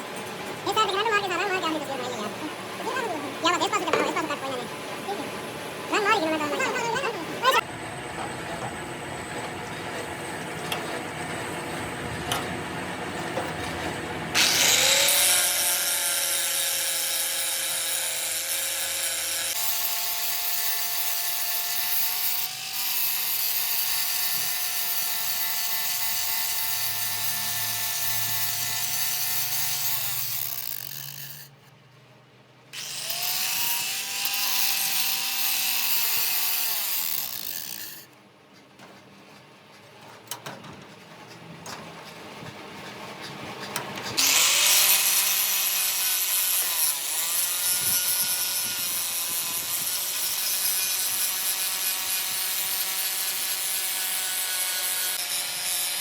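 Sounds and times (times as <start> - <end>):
power tool motor whining: 14.3 - 31.6, 32.8 - 38.1, 44.2 - 56.0.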